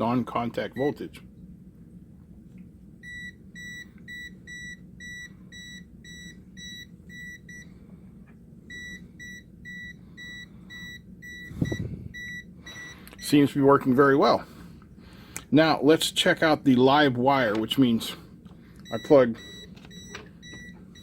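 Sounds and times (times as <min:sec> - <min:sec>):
voltage detector beeping: 0:08.7 - 0:13.6, 0:18.8 - 0:21.0.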